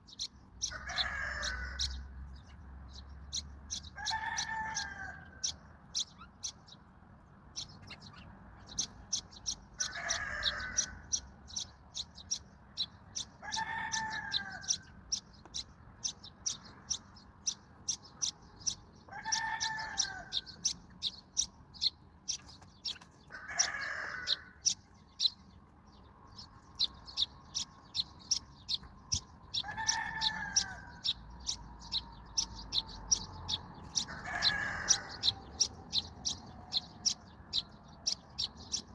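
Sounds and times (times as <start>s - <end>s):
sparrows chirping: 0.0s - 38.9s
chicken calling: 9.8s - 11.0s, 33.9s - 35.4s.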